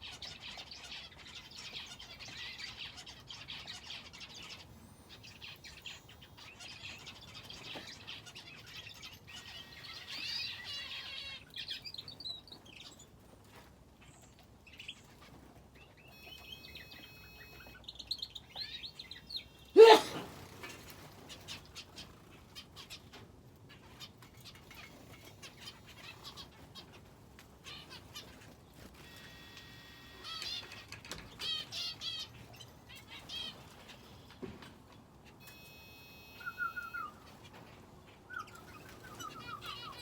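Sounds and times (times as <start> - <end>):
cage birds chirping and twittering: 0.0 - 40.0.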